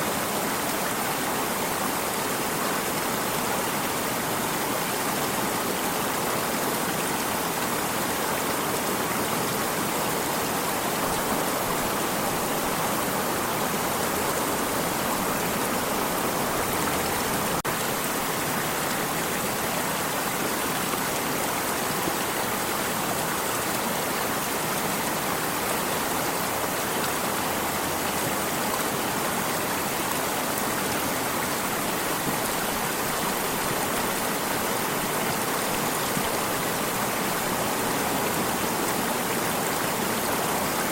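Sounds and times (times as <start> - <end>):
stream water rushing: 0.0 - 40.9.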